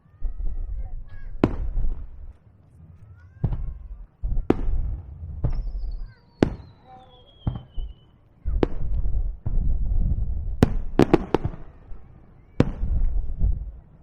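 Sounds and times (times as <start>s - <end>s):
low continuous rumble: 0.0s - 6.6s
firework shells bursting: 1.1s - 9.7s.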